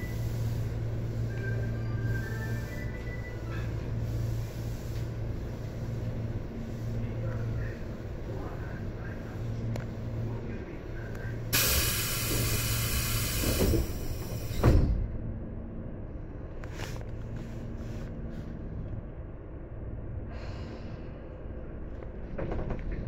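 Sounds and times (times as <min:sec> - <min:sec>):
train car low hum: 0:00.0 - 0:23.0
air hissing: 0:11.5 - 0:14.6.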